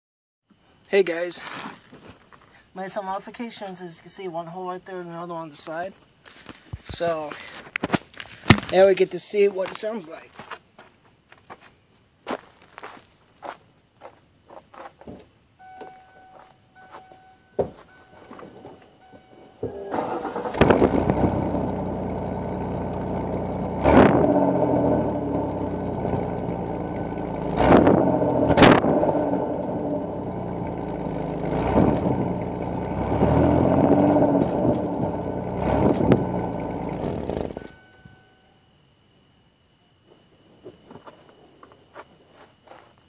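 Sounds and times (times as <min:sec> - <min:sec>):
car engine revving: 0:19.6 - 0:37.8.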